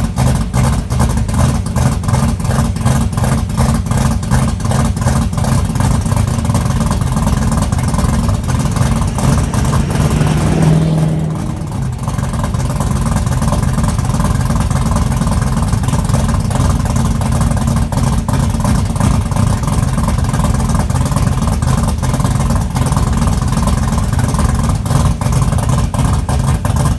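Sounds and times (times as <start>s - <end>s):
engine idling and revving: 0.0s - 26.9s.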